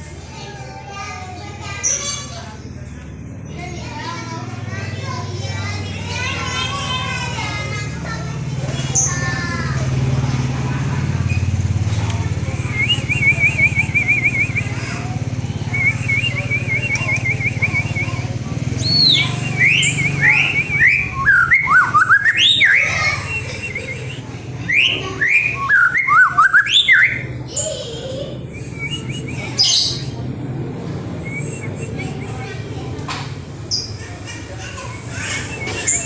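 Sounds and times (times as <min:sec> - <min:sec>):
songbird trilling and whistling: 0:12.4 - 0:30.2, 0:31.1 - 0:32.6, 0:34.8 - 0:36.0.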